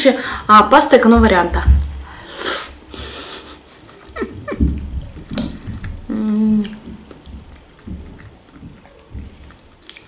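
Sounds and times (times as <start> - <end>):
wet chewing: 4.0 - 10.0
person humming mmm: 5.4 - 7.0.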